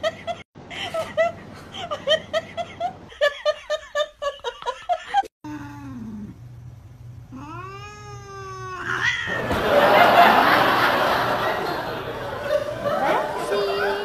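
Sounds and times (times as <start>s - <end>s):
cat moaning and yowling: 7.3s - 9.3s.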